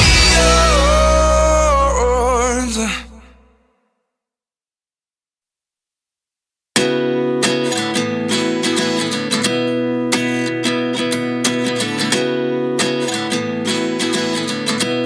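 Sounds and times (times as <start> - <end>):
strummed acoustic guitar: 0.0 - 3.2, 6.8 - 15.0.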